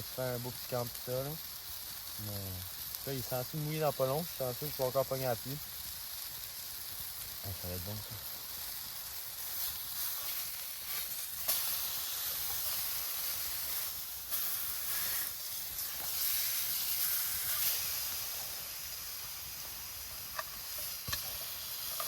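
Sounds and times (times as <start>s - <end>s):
food sizzling over campfire: 0.0s - 22.0s
sharp pops: 13.6s - 22.0s.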